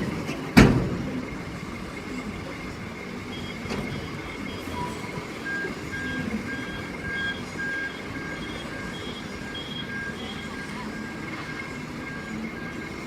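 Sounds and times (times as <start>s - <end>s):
low engine rumble: 0.0s - 13.0s
back-up alarms beeping: 3.2s - 13.0s
lower-pitched back-up alarm: 3.2s - 13.0s.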